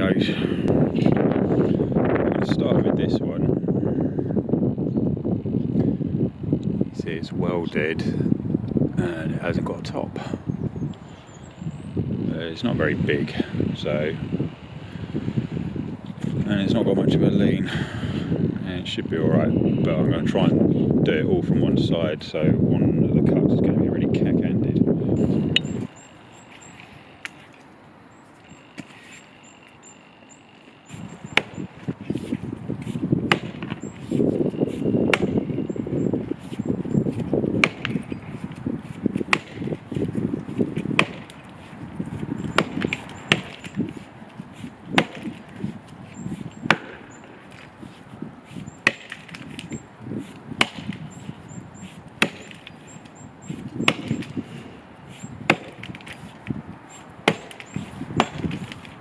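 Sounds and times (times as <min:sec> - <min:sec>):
axe chopping tree trunk: 0:30.9 - 0:35.5, 0:36.4 - 0:47.7, 0:48.5 - 0:51.2, 0:51.8 - 0:59.0.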